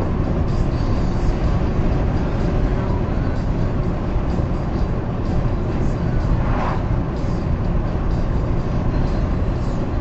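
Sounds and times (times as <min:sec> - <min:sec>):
car cabin road and engine noise: 0:00.0 - 0:10.0.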